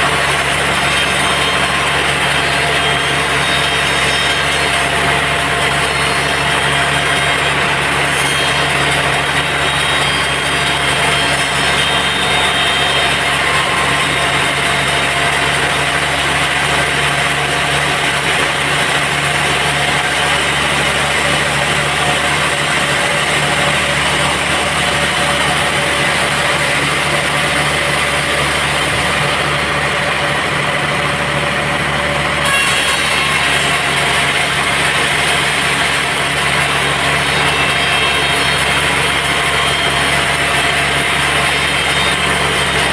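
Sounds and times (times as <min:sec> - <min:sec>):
sawmill machinery humming: 0:00.0 - 0:42.9.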